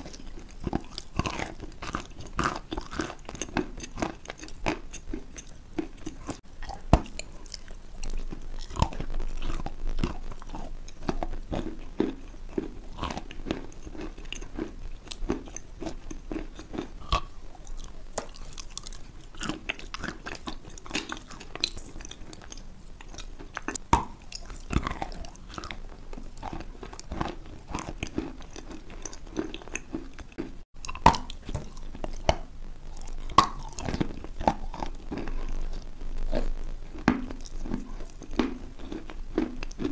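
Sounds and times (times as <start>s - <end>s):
mouth crunching crumbly lump: 0.0s - 39.9s.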